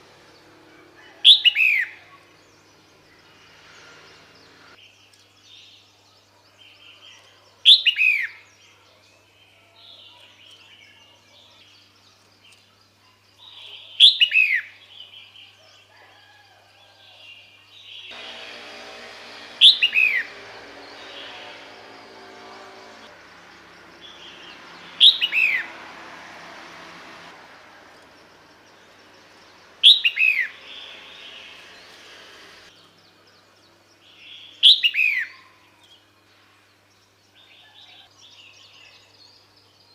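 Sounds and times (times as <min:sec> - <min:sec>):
bird calling: 0:19.5 - 0:22.2, 0:24.0 - 0:25.7.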